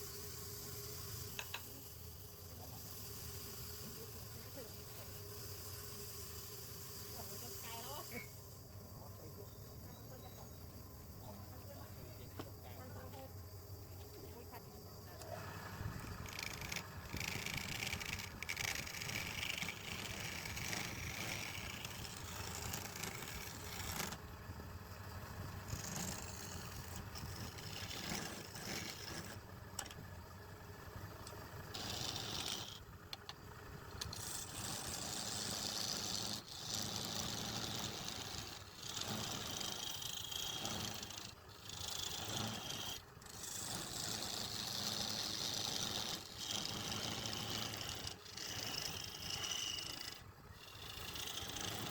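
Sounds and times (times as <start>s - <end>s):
wood lathe motor hum: 15.1s - 51.9s
turning tool scraping wood: 15.2s - 24.4s, 25.0s - 30.1s, 31.2s - 51.9s.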